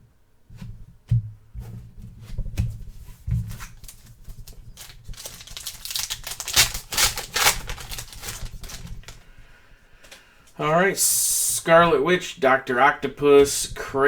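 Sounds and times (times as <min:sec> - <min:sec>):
cards and packaging rustling: 0:02.9 - 0:09.4, 0:10.0 - 0:10.7.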